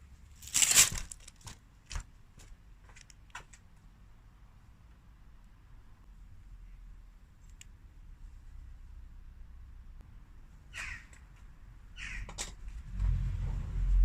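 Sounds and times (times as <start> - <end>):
crow cawing: 10.7 - 11.2, 12.0 - 12.4.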